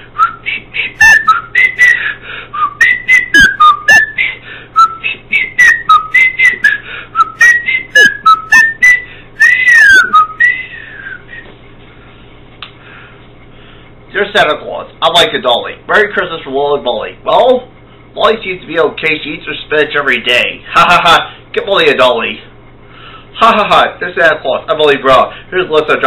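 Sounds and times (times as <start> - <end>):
person whistling a tune: 0.1 - 11.5.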